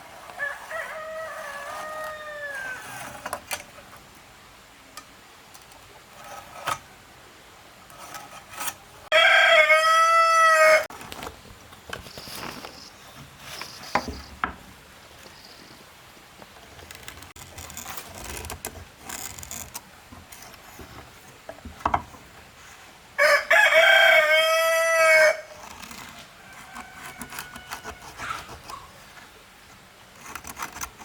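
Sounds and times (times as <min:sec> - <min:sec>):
rooster crowing: 0:00.3 - 0:03.1, 0:09.1 - 0:10.9, 0:23.2 - 0:25.6, 0:26.3 - 0:28.5.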